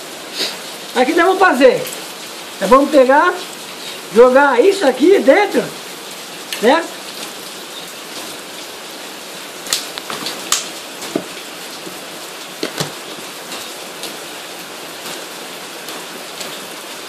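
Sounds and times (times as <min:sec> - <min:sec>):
steady rain falling: 0:00.0 - 0:17.0
hands handling materials: 0:09.8 - 0:13.7.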